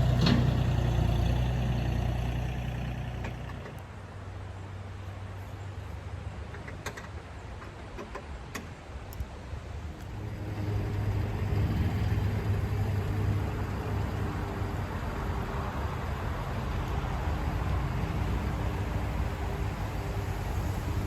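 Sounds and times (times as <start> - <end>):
vehicle engine running: 0.0 - 4.8, 10.0 - 21.0.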